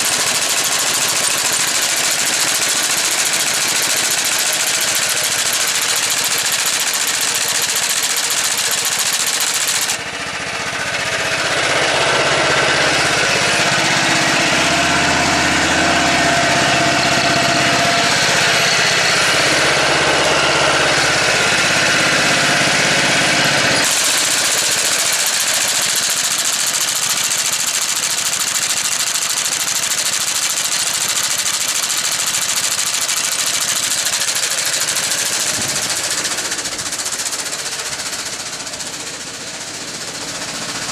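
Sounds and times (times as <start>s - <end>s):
fast clatter of mower cutter bar: 0.0s - 40.9s
walk-behind tractor engine running: 0.0s - 40.9s
deeper engine note wavering: 10.1s - 23.8s.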